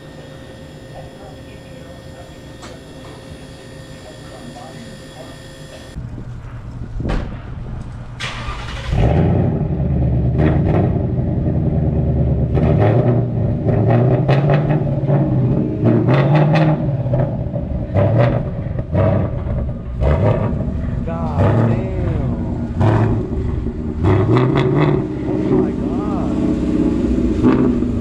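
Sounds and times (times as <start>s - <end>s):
car engine revving: 8.1s - 28.0s.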